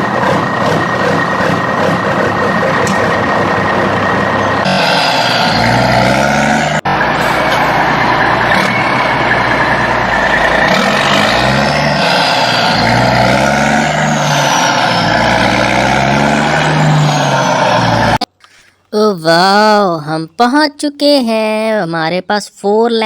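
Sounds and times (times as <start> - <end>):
truck engine revving: 0.0 - 18.4.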